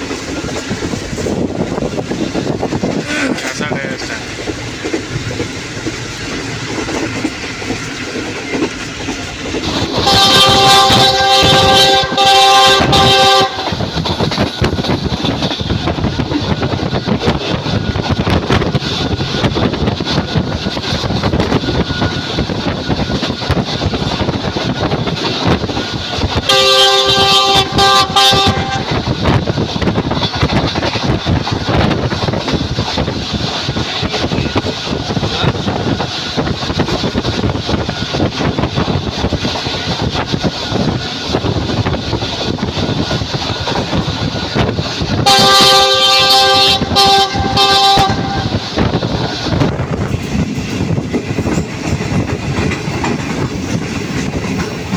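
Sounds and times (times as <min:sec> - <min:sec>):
train wheels clattering on rails: 0:00.0 - 0:54.9
train horn blasts: 0:09.9 - 0:13.8, 0:26.4 - 0:29.0, 0:45.2 - 0:48.7.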